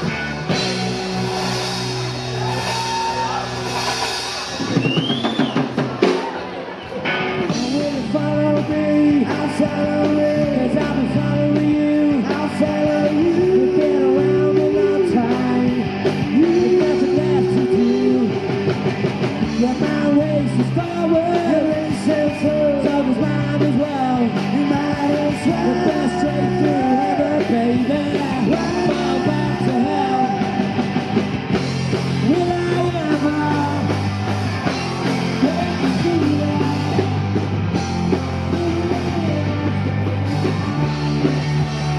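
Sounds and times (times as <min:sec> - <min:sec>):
bass guitar: 0:00.0 - 0:41.9
drum kit: 0:00.0 - 0:41.9
electric guitar: 0:00.0 - 0:41.9
person singing: 0:07.4 - 0:31.2, 0:32.2 - 0:34.0, 0:35.0 - 0:37.5, 0:38.1 - 0:40.9.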